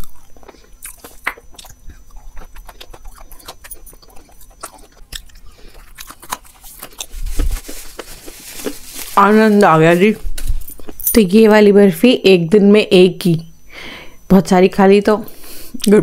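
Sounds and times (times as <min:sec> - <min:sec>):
person chewing crunchy sweet: 0:00.0 - 0:11.1.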